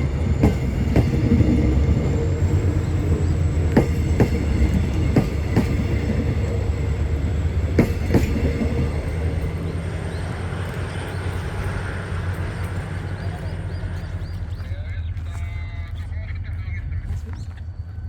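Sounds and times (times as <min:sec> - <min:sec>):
train wheels clicking over rail joint: 0:00.0 - 0:09.6
train low rumble: 0:00.0 - 0:18.0.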